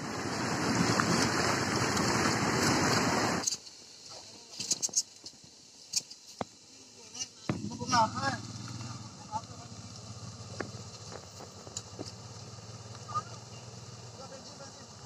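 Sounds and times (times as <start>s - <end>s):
floodwater rushing roar: 0.0s - 4.7s.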